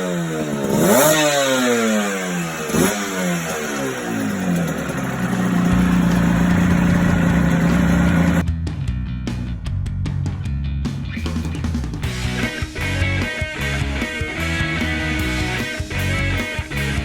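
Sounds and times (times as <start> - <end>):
motorcycle engine revving and idling: 0.0 - 8.4.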